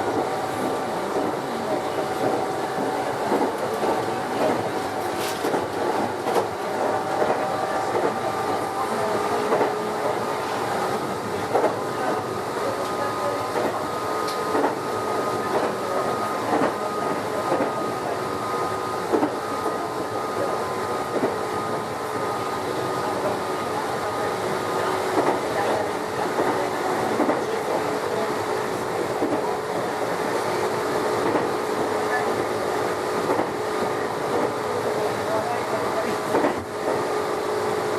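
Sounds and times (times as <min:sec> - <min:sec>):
train motors humming: 0:00.0 - 0:37.9
train rolling noise: 0:00.0 - 0:37.9.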